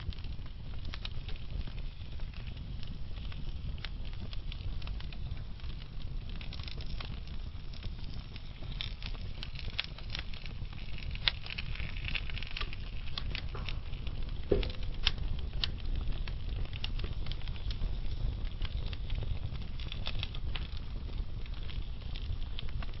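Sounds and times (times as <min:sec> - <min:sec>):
low rumble of flames: 0:00.0 - 0:23.0
wood fire crackling: 0:00.0 - 0:23.0
loud fire pop: 0:12.4 - 0:16.0.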